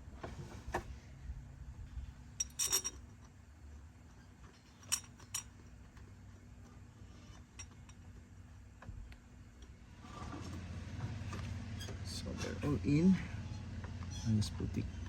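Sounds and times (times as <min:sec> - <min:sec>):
metal tools clinking: 0:02.4 - 0:03.4, 0:04.6 - 0:05.6.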